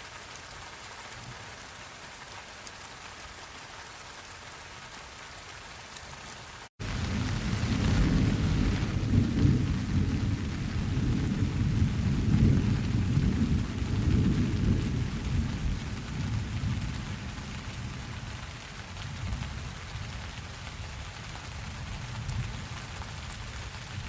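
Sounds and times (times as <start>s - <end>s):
rain hissing: 0.0s - 24.0s
rolling thunder: 6.8s - 18.1s.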